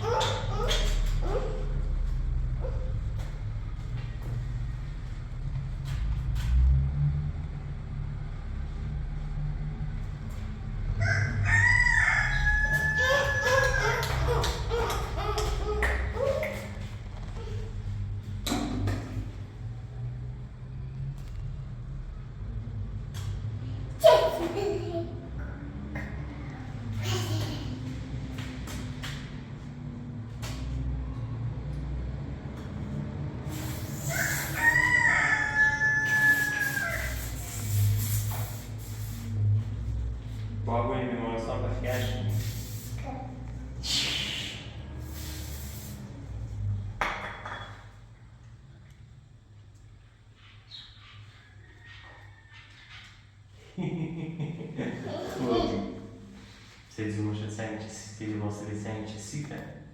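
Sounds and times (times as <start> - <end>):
rooster crowing: 10.9 - 14.4, 34.0 - 37.4.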